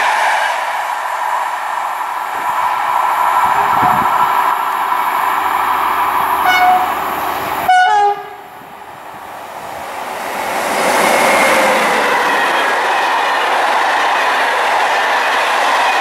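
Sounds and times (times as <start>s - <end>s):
approaching train rumble: 0.0s - 16.0s
train horn blasts: 6.4s - 7.0s, 7.7s - 8.5s.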